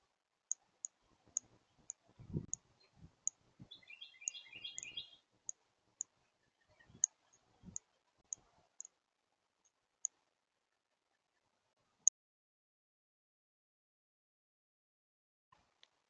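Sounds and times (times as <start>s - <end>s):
bird chattering notes: 3.8s - 5.1s
sharp high bird ticks: 4.2s - 6.1s.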